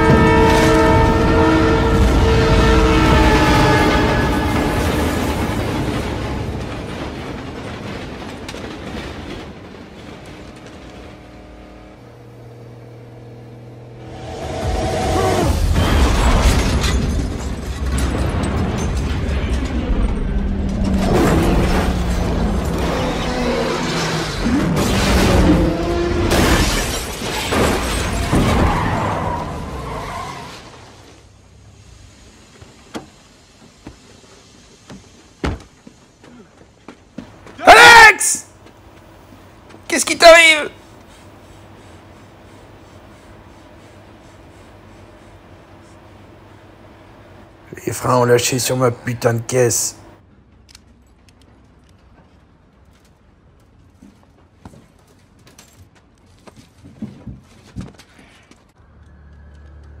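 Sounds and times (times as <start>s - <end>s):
vehicle rumbling: 0.0s - 37.6s, 40.7s - 60.0s.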